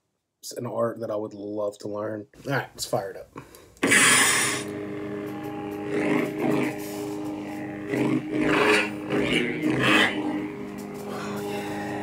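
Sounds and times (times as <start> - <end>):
lightsaber hum: 3.8 - 12.0.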